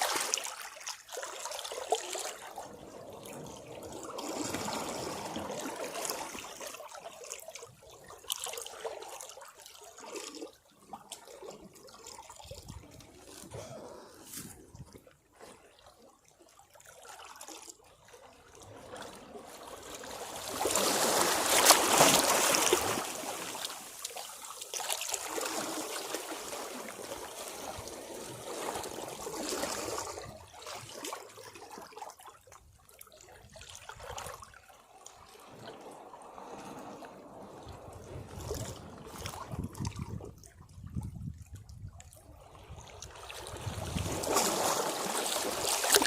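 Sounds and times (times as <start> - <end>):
sea waves washing against rocks: 19.9 - 24.0, 43.4 - 46.0.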